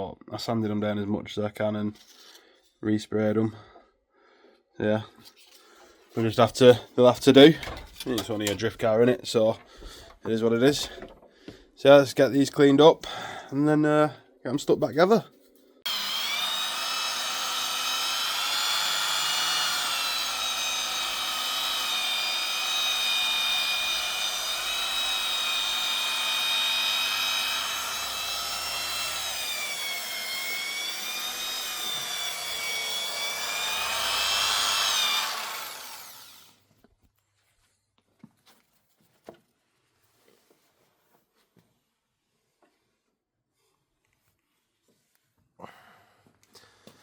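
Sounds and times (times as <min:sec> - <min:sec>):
electric power tool whine: 0:15.9 - 0:36.6.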